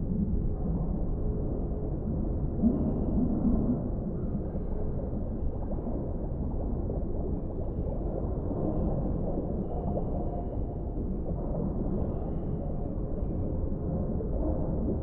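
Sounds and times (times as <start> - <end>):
low underwater rumbling wash: 0.0 - 15.0.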